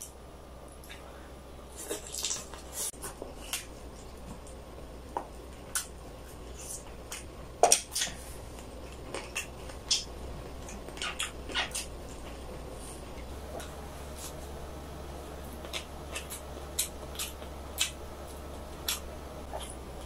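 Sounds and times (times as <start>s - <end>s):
wet chewing and lip smacks: 15.3s - 19.9s.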